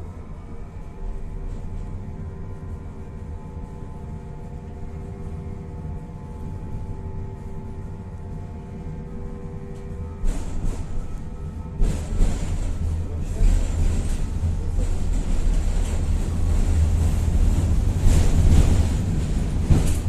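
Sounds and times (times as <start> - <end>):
tram rumbling: 0.0 - 20.0
rough tram noise: 8.0 - 20.0.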